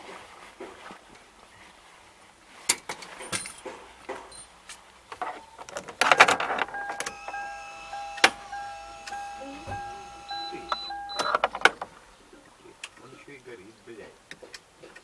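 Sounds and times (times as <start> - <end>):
high multi-pitched whine: 6.2 - 11.5.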